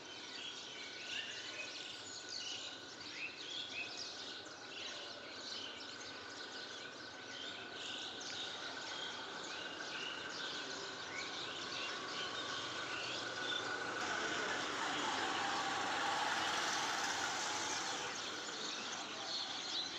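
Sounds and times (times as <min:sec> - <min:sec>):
small birds chirping: 0:00.0 - 0:19.9
outdoor background hiss: 0:05.7 - 0:19.9.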